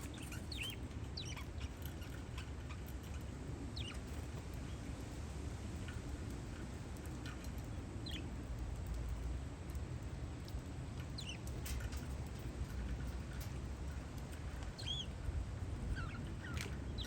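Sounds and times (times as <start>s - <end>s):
wind rumble on microphone: 0.0s - 17.0s
parakeets chirping: 0.1s - 1.7s, 3.8s - 4.0s, 14.8s - 15.1s, 15.9s - 17.0s.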